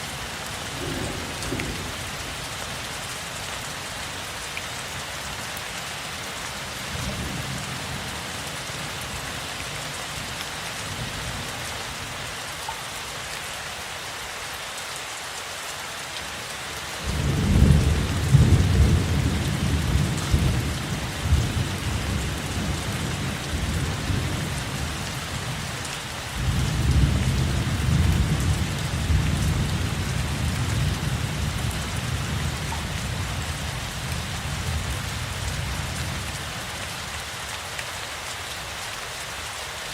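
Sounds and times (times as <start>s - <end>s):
steady rain falling: 0.0s - 39.9s
rolling thunder: 0.7s - 2.5s.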